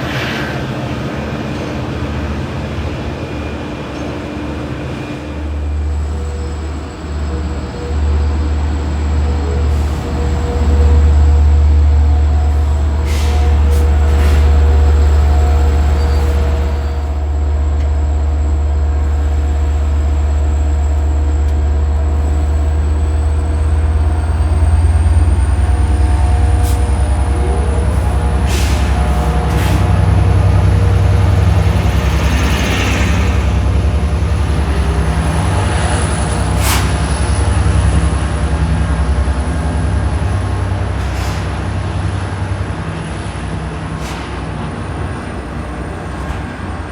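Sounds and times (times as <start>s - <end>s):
train low drone with whine: 0.0s - 46.9s
air brake hisses: 12.5s - 14.7s, 27.9s - 30.0s, 36.4s - 37.9s.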